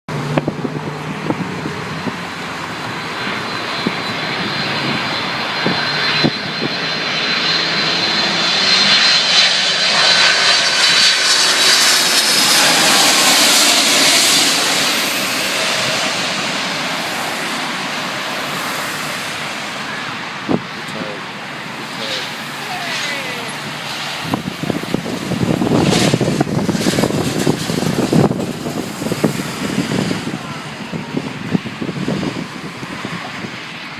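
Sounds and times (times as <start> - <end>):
high engine whine: 0.1 - 33.9
jetliner passing on approach: 0.1 - 33.9.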